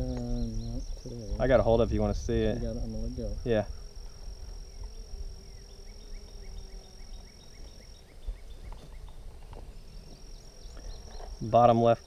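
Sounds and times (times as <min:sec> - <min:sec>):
low wind rumble: 0:00.0 - 0:05.7.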